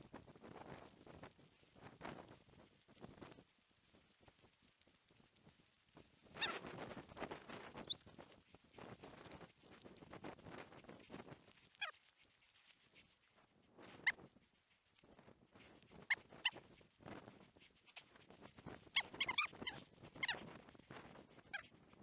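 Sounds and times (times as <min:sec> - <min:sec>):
dog whining: 0:19.0 - 0:21.7.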